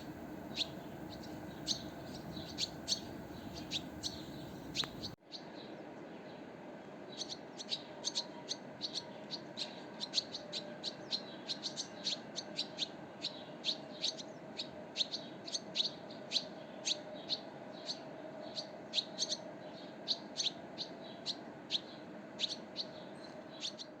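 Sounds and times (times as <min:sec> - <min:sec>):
background hum: 0:00.0 - 0:05.2
small birds chirping: 0:00.0 - 0:05.7, 0:07.1 - 0:24.0.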